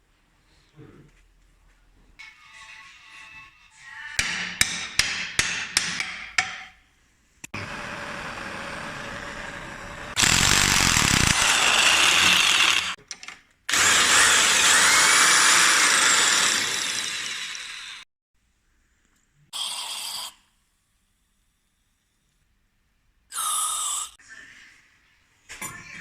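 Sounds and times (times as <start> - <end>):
power tool running: 7.6 - 13.0, 13.7 - 18.0.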